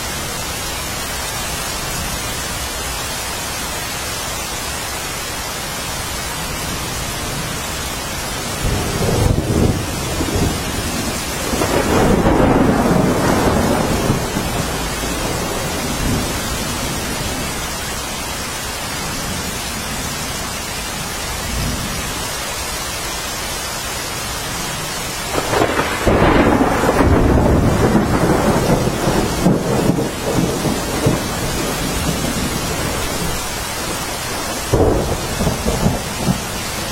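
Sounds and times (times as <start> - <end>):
steady rain: 0.0 - 36.9
thunder rolling: 8.5 - 17.6, 25.3 - 36.9.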